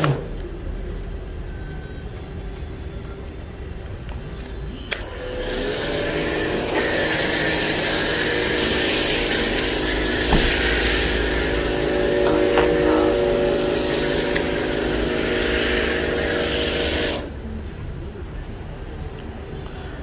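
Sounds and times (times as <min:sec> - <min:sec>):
pressure washer pump running: 0:04.9 - 0:17.4
foam spraying hiss: 0:05.0 - 0:17.4.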